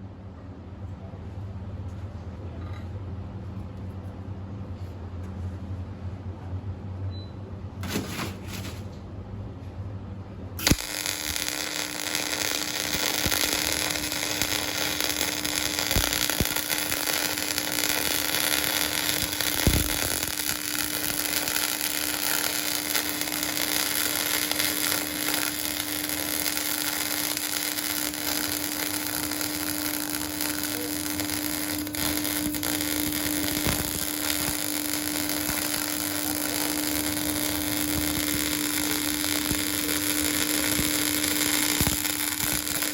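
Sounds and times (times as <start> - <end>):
arc welding crackling hiss: 10.6 - 42.9
welding arc striking crack: 10.6 - 42.9.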